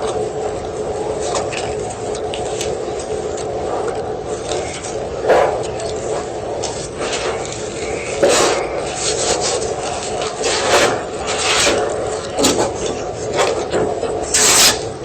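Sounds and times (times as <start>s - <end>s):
chalk crunching and crumbling: 4.4s - 14.9s.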